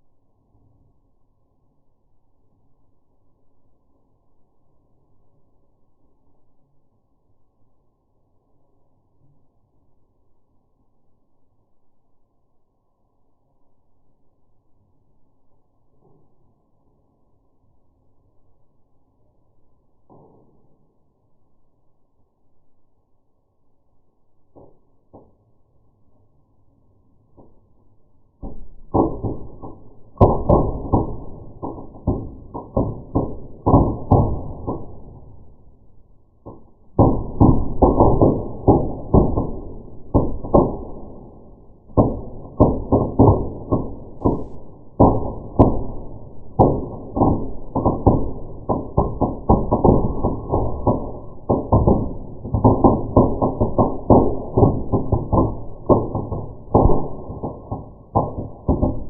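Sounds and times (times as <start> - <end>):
bark crackling and popping in fire: 24.4 - 59.0.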